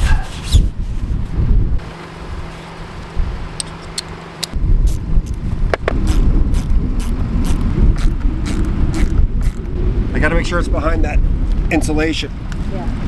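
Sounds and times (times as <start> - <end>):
low rumble: 4.6 - 13.0.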